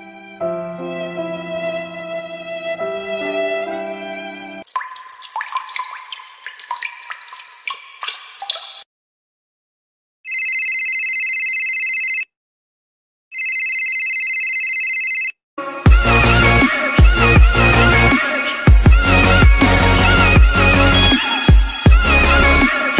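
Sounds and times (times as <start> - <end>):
water dripping and plinking: 4.6 - 8.9.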